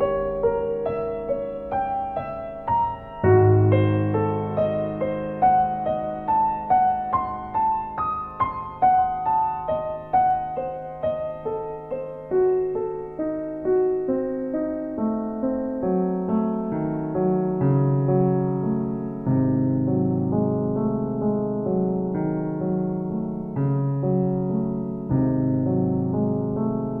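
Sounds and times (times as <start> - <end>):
slow solo piano melody: 0.0 - 27.0.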